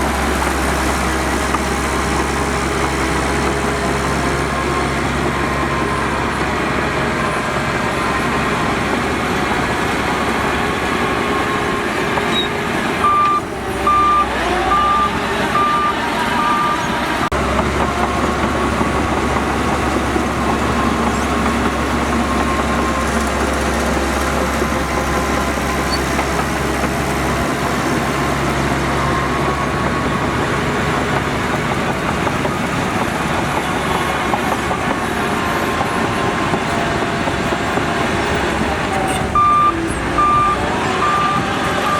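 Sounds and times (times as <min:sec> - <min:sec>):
heavy diesel machinery running: 0:00.0 - 0:41.9
reversing alarm beeping: 0:12.3 - 0:17.3, 0:39.3 - 0:41.9.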